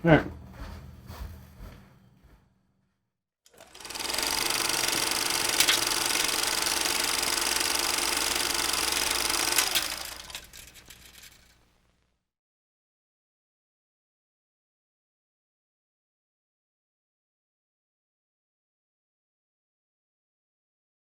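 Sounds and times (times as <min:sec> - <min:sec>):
kitchen appliance motor running: 0:03.5 - 0:11.6
sharp clicks: 0:03.6 - 0:11.6.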